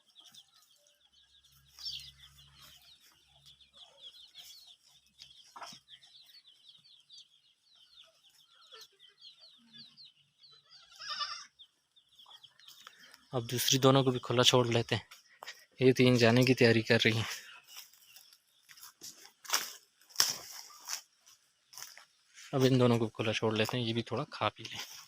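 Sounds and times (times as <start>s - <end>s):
chicks peeping: 0.0s - 25.0s
loud chicken call: 10.7s - 11.6s.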